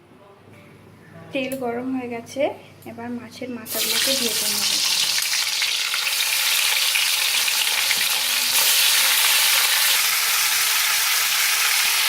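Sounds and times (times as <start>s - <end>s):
fish sizzling in oil: 3.7s - 12.0s.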